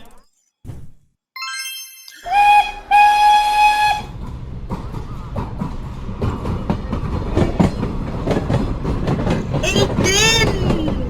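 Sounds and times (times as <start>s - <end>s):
steam train whistle: 2.3s - 4.2s
train rumbling: 2.3s - 11.0s
wheels clacking on rails: 3.5s - 11.0s.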